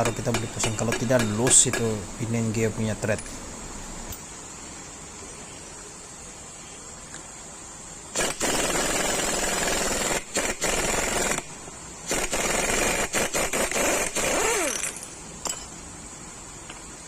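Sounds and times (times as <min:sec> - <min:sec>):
impact wrench rattling: 0:00.0 - 0:02.0.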